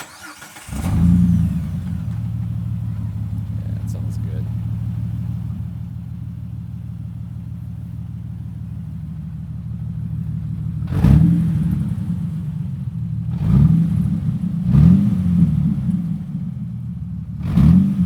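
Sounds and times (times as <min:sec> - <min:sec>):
engine revving: 0:00.0 - 0:05.6, 0:10.8 - 0:16.4, 0:17.4 - 0:18.0
car engine idling with open exhaust: 0:00.0 - 0:18.0.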